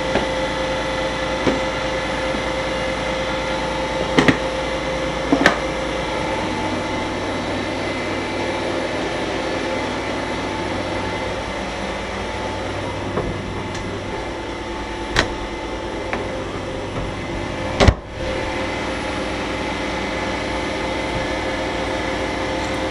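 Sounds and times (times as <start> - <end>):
vacuum cleaner running: 0.0 - 22.9.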